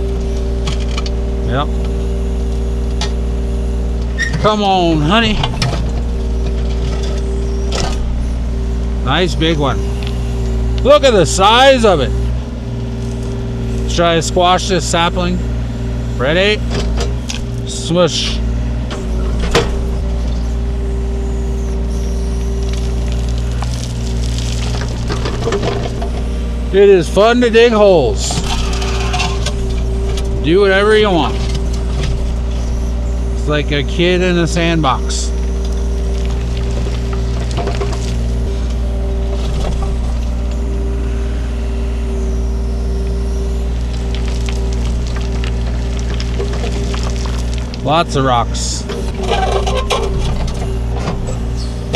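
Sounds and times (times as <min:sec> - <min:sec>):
excavator diesel engine running: 0:00.0 - 0:51.9
hydraulic tone: 0:00.0 - 0:51.9
bucket scraping rocky soil: 0:19.0 - 0:51.9.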